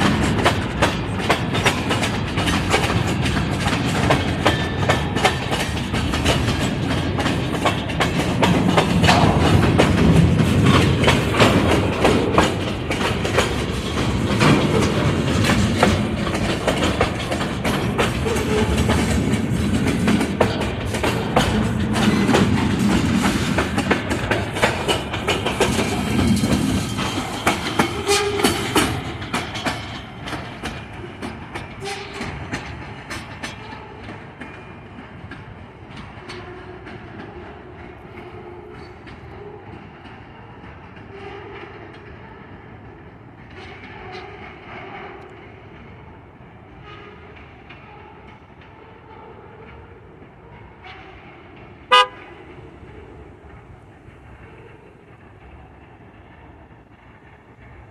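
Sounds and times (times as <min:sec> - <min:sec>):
wheel clicks over rail joints: 0:00.0 - 0:39.3
train rolling past: 0:00.0 - 0:57.9.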